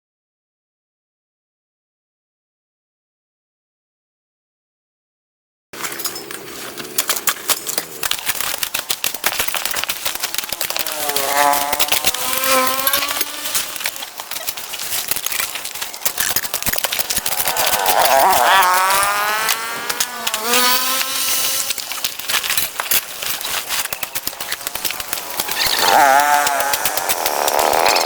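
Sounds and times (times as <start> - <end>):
two-stroke power tool engine: 5.8 - 28.0
vegetation crackling and snapping: 6.0 - 28.0.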